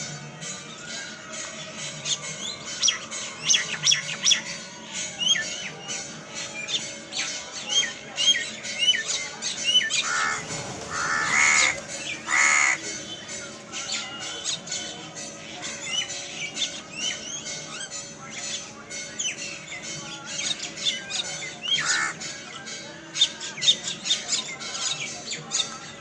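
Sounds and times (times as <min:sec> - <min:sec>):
flock of birds chirping: 0:00.0 - 0:26.0
harsh bird squawks: 0:10.0 - 0:12.8, 0:21.8 - 0:22.2.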